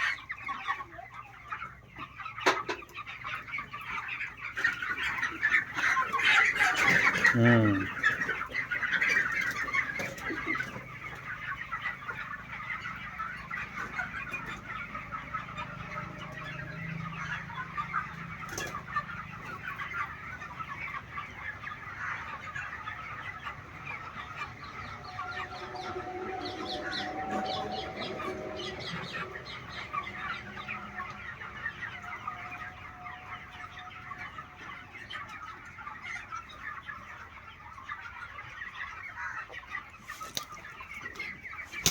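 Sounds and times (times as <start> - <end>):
chickens clucking and chirping: 0.0 - 41.9.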